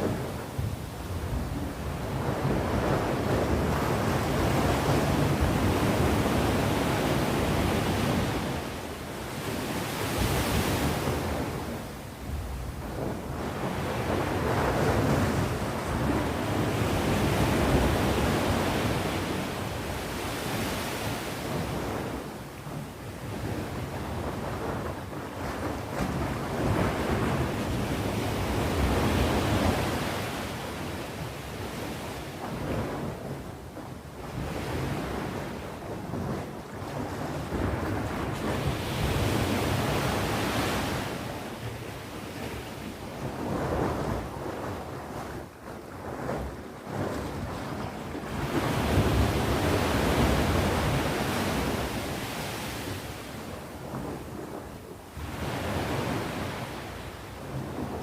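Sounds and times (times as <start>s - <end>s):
sea waves breaking on shore: 0.0s - 58.0s
wind on microphone: 0.0s - 58.0s.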